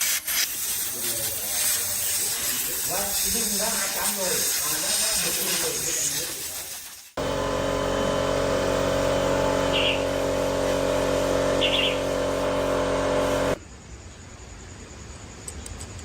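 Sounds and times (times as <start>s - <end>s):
small motorbike engine idling: 7.2s - 13.6s.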